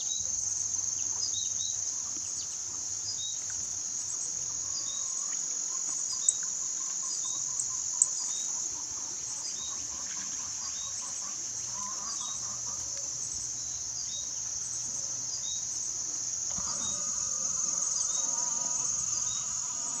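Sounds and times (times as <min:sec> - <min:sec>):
high insect drone: 0:00.0 - 0:20.0
birds chipping: 0:16.5 - 0:20.0
low animal call: 0:16.5 - 0:20.0.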